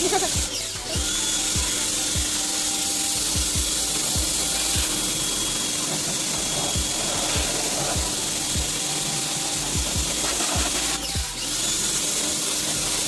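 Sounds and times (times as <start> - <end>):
background music with kick drum: 0.0 - 13.0
pressure washer spraying hiss: 0.0 - 13.0.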